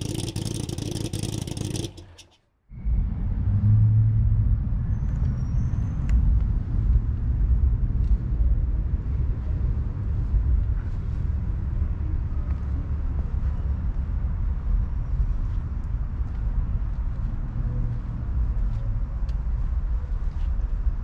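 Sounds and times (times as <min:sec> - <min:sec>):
car engine idling: 0:00.0 - 0:02.3.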